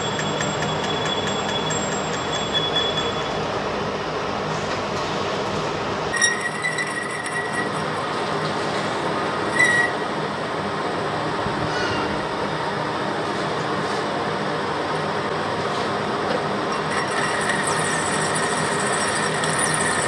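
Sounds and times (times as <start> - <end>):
metal lathe running: 0.0 - 4.0, 6.0 - 10.7, 16.6 - 20.0.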